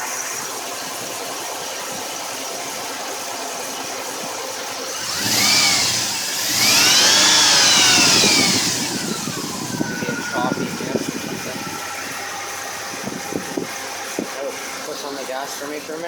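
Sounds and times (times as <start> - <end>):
car engine idling rough: 1.2 - 16.0
car engine revving: 4.9 - 12.8.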